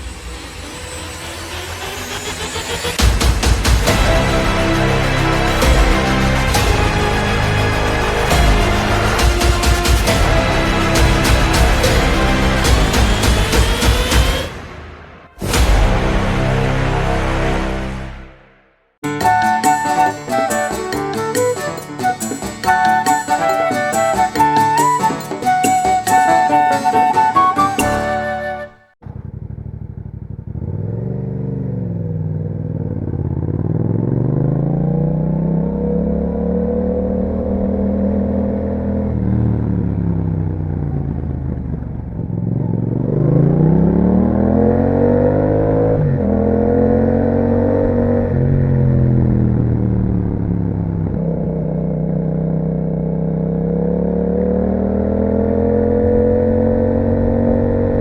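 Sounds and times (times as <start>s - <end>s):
motorcycle engine revving: 29.0s - 58.0s.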